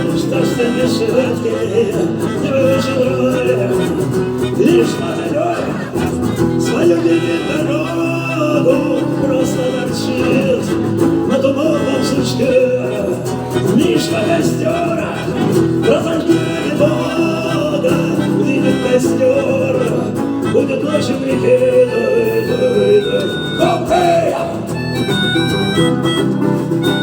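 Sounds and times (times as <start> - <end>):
live rock band instrumental: 10.0 - 27.0.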